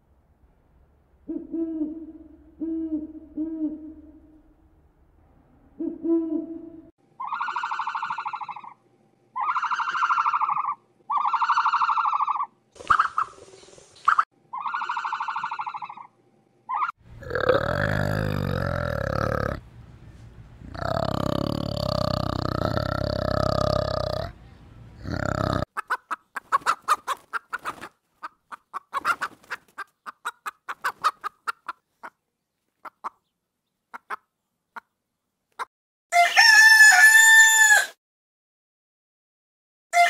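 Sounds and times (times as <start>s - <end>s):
owl hooting: 1.3s - 4.4s, 5.8s - 8.8s, 9.4s - 13.4s, 14.1s - 16.1s, 16.7s - 16.9s
orangutan deep calls: 16.7s - 19.6s, 20.6s - 24.4s.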